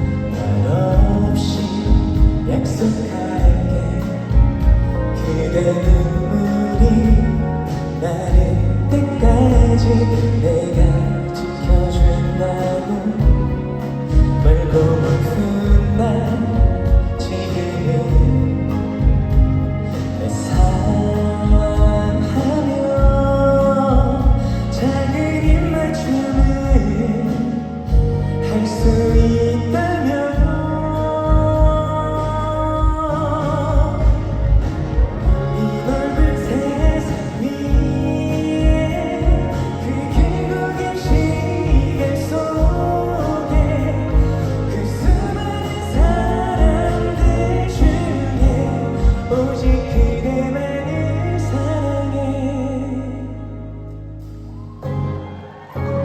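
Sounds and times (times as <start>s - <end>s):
low drum beat: 0.0s - 50.6s
live pop ballad with band: 0.0s - 56.0s
sliding melody line: 0.0s - 56.0s
kick drum beat: 1.0s - 2.6s, 18.1s - 19.8s, 45.0s - 50.4s.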